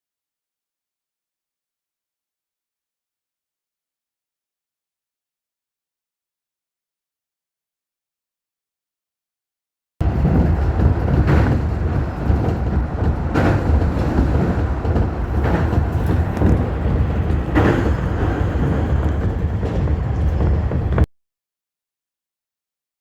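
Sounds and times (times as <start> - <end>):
regular rail knock: 10.0 - 21.1
train wheels rumbling on rail: 10.0 - 21.1.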